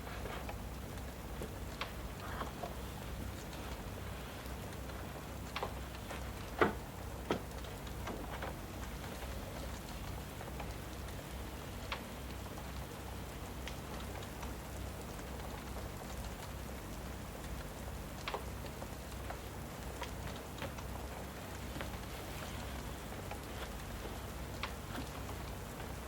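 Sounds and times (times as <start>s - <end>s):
fire pops: 0.0s - 16.6s
fireplace crackling: 0.0s - 26.0s
steady rain hiss: 0.0s - 26.0s.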